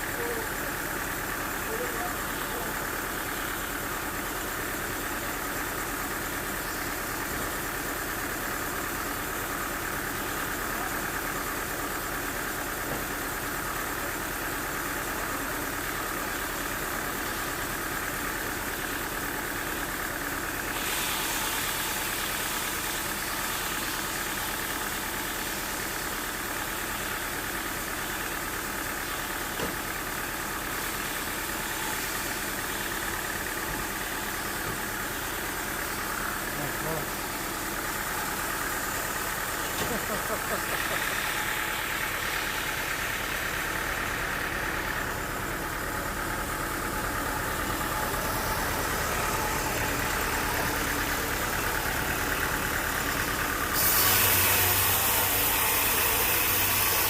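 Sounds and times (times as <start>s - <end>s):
sawmill engine running: 0.0s - 57.0s
hissing machinery sound: 20.1s - 26.4s, 27.8s - 57.0s.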